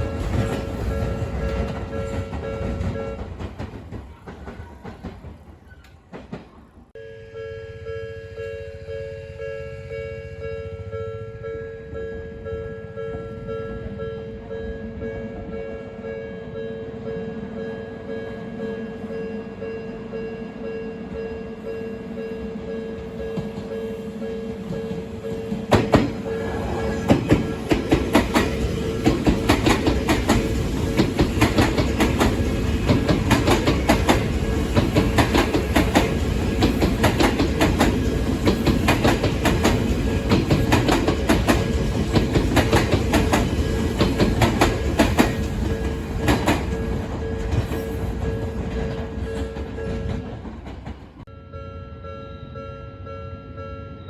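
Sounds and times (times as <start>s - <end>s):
crossing warning bell ringing: 0.0s - 3.6s, 7.0s - 50.7s, 51.3s - 54.0s
train wheels clacking over rail joints: 24.7s - 51.2s.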